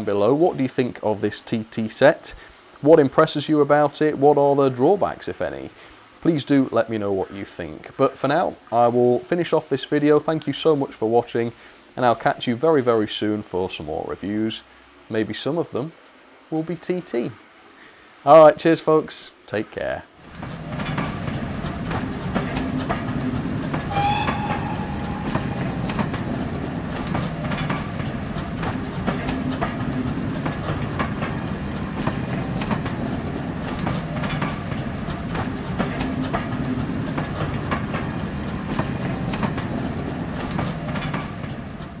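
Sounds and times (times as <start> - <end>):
train coaches rumbling past: 20.2 - 42.0
wheels clacking over rail joints: 20.2 - 42.0
wheel squeal: 23.8 - 28.2.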